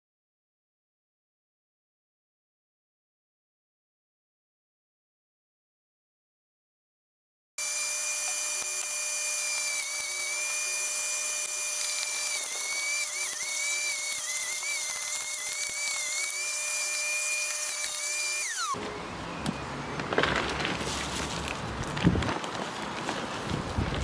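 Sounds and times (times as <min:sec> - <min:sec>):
electric wood chipper whining: 0:07.6 - 0:19.0.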